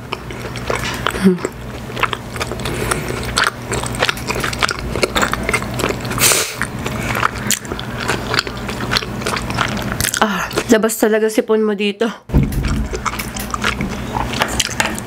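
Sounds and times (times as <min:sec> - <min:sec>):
chewing with wet clicks: 0:00.0 - 0:10.8, 0:12.5 - 0:15.0
steady low hum: 0:00.0 - 0:15.0.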